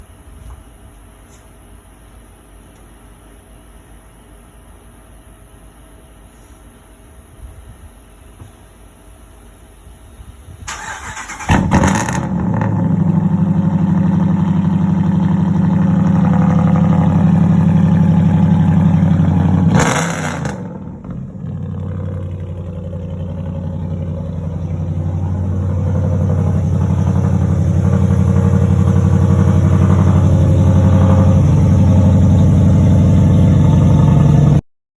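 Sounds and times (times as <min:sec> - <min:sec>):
deep engine idle: 0:11.6 - 0:34.6.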